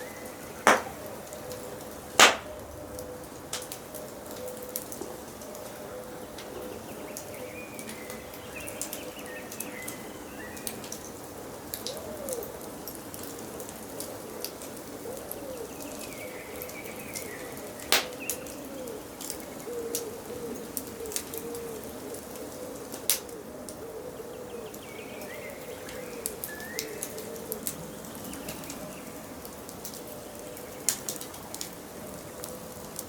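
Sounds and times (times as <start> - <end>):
birds chirping: 0.0 - 2.8, 5.5 - 11.3, 15.4 - 22.1, 24.0 - 33.0
wood fire crackling and popping: 0.0 - 12.0, 12.8 - 23.8, 24.8 - 33.0
low cooing calls: 0.0 - 33.0.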